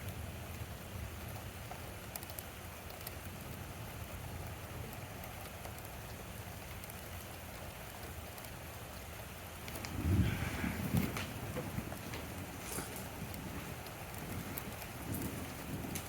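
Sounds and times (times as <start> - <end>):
steady rain: 0.0 - 16.0
water drip ticks: 0.0 - 16.0
low thunder rumble: 9.6 - 16.0.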